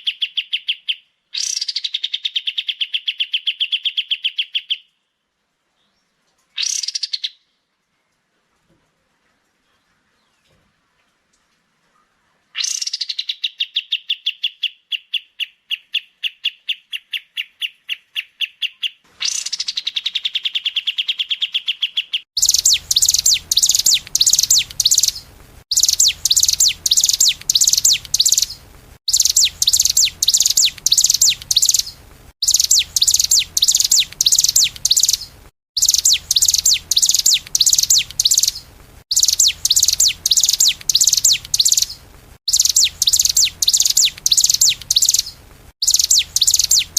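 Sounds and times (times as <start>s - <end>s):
songbird chirps: 0.0s - 46.9s
high dense bird twittering: 12.6s - 46.9s.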